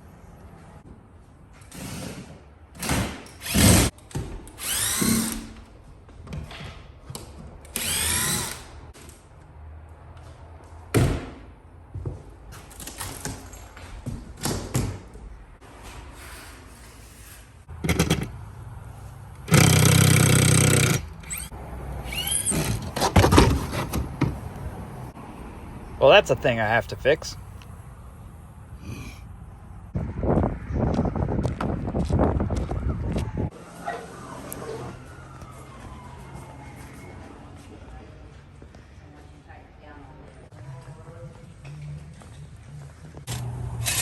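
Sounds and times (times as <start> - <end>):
power drill running: 19.5 - 21.5.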